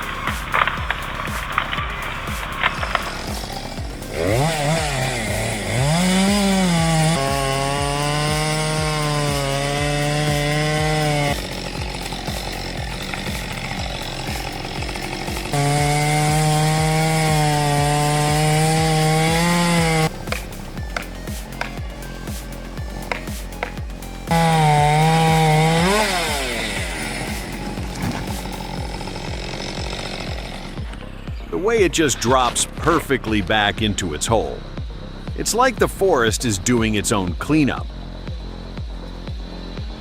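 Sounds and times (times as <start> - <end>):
chainsaw revving under load: 0.0 - 31.2
background music with steady beat: 0.0 - 40.0.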